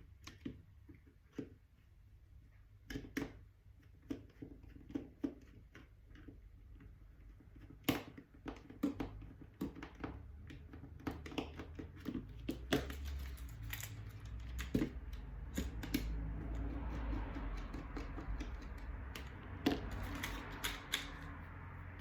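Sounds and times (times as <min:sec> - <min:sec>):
plastic parts and tools clicking: 0:02.9 - 0:22.0.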